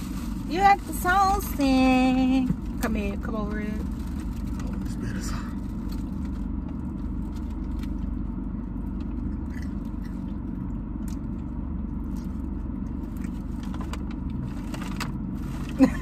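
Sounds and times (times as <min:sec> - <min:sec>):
car engine hum: 0:00.0 - 0:16.0
chewing crunchy food: 0:04.4 - 0:15.0.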